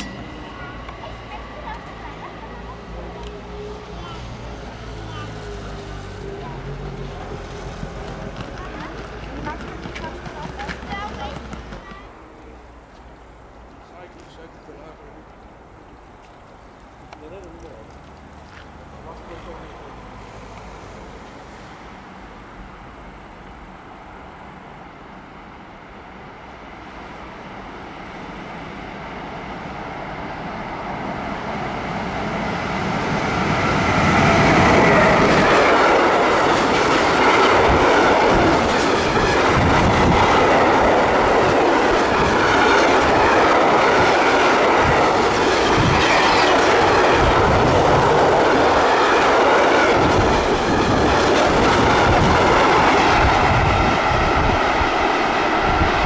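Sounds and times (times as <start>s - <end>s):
freight train passing: 0.0s - 56.0s
wheels clacking over rail joints: 5.1s - 12.1s, 33.2s - 53.8s.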